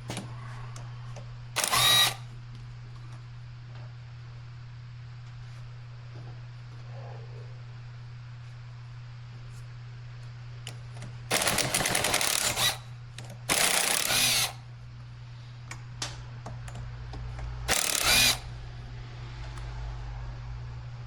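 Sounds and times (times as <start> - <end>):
power driver running: 0.0 - 3.2, 10.6 - 19.7
steady low hum: 0.0 - 21.0.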